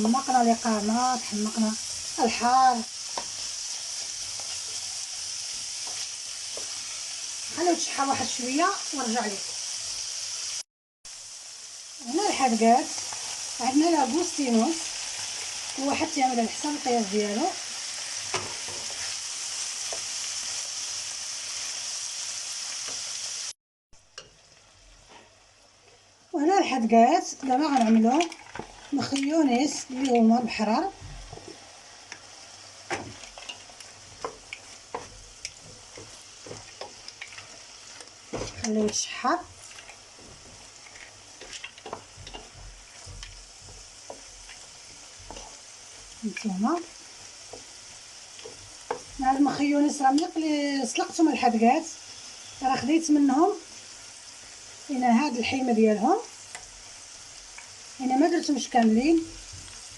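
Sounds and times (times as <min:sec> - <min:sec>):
shellfish sizzling in a pan: 0:00.0 - 0:59.9
light popping in pan: 0:27.4 - 0:51.4, 0:56.2 - 0:59.9.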